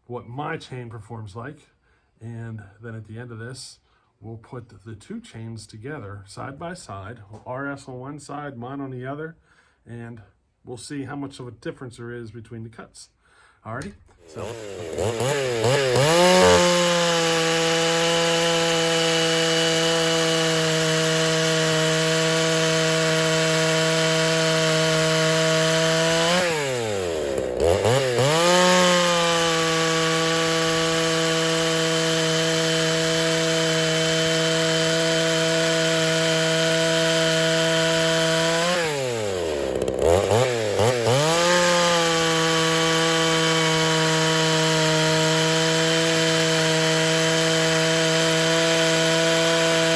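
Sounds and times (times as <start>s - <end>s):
chainsaw cutting wood: 14.2s - 49.9s.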